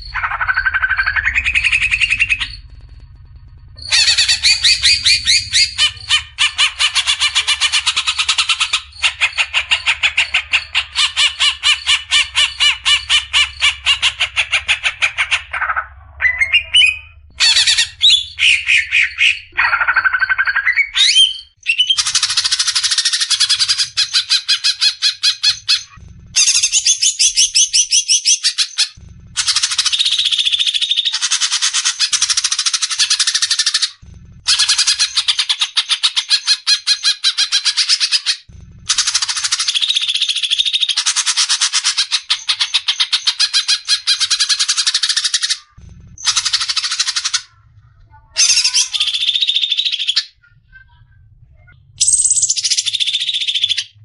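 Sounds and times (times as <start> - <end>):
bird harsh rattling calls: 0.0 - 3.0, 3.6 - 47.6, 48.4 - 50.4, 52.0 - 54.0
bird gliding notes and whistle: 3.8 - 6.2.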